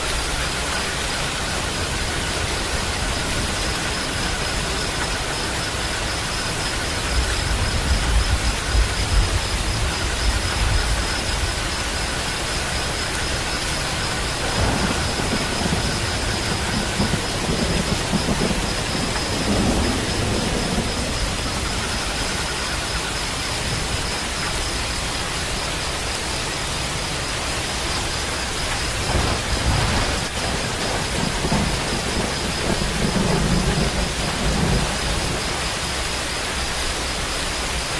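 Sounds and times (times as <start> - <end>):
steady rain hiss: 0.0 - 37.9.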